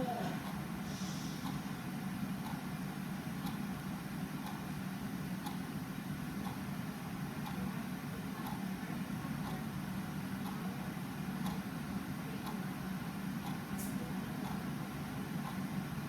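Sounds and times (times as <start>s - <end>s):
low background hum: 0.0s - 16.0s
clock ticking: 2.4s - 2.6s, 3.4s - 3.6s, 11.4s - 11.6s.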